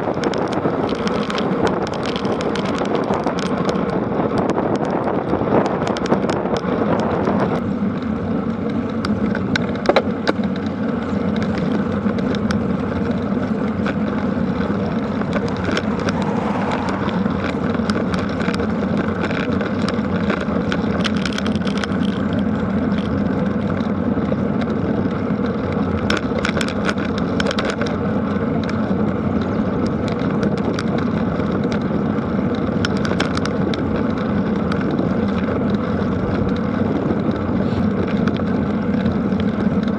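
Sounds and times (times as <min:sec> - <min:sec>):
wind rushing on microphone: 0:00.0 - 0:07.7, 0:08.9 - 0:39.9
bicycle tyre noise: 0:00.0 - 0:39.9
small clicks and rattles: 0:00.0 - 0:39.9.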